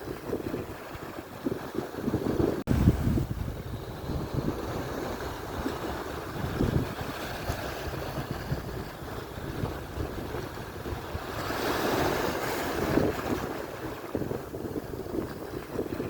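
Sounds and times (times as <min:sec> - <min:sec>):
surf washing onto shore: 0:00.0 - 0:16.0
wind buffeting microphone: 0:00.0 - 0:16.0
wave breaking: 0:02.1 - 0:15.9.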